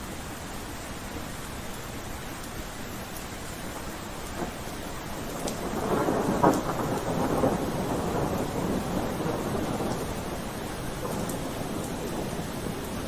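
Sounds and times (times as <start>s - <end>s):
steady rain: 0.0s - 13.0s
thunder rumbling: 4.3s - 13.0s.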